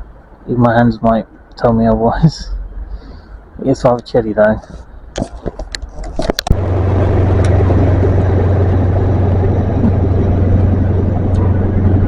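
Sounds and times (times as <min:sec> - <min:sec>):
diesel train engine droning: 0:06.5 - 0:12.0.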